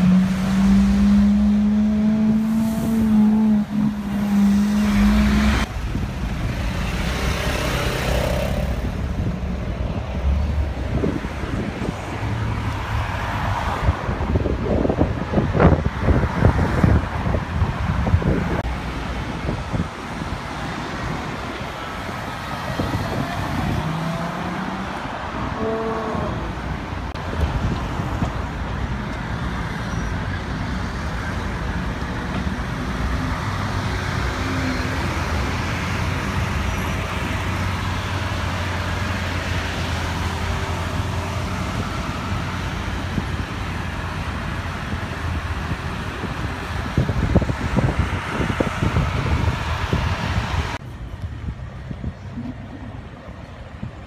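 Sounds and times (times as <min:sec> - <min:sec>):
city road traffic: 0:00.0 - 0:54.0
wind buffeting microphone: 0:02.5 - 0:25.6, 0:35.1 - 0:54.0.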